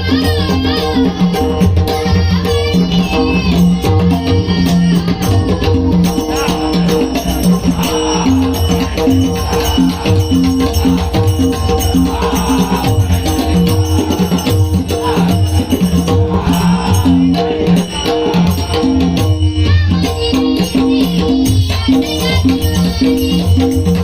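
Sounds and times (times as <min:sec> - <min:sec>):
rattling hand percussion: 0:00.0 - 0:24.0
low drum beat: 0:01.2 - 0:20.1
sustained held notes: 0:03.2 - 0:19.7.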